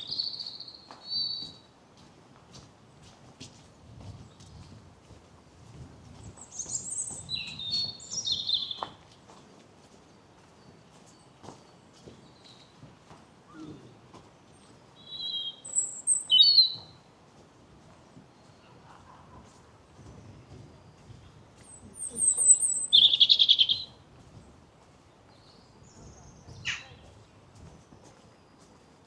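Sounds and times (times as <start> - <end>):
songbird singing high phrases: 0.0 - 1.6, 6.4 - 8.9, 15.0 - 17.0, 20.8 - 24.0, 25.3 - 27.1.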